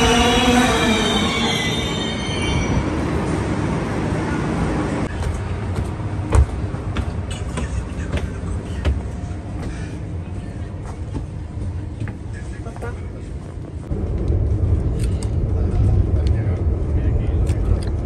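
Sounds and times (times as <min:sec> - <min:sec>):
train rumbling at platform: 0:00.0 - 0:18.0
footsteps on stairs: 0:05.1 - 0:09.9.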